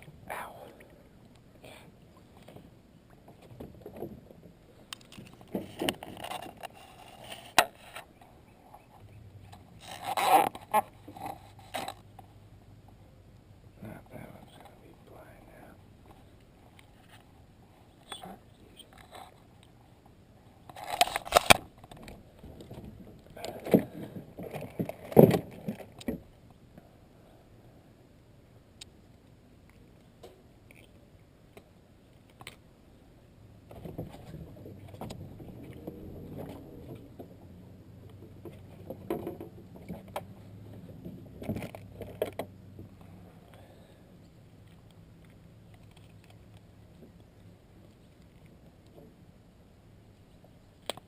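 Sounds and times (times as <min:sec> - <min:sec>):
faint low hum: 0:00.0 - 0:51.0
gear clattering in a boat: 0:03.2 - 0:07.9, 0:20.7 - 0:26.3, 0:33.7 - 0:43.0.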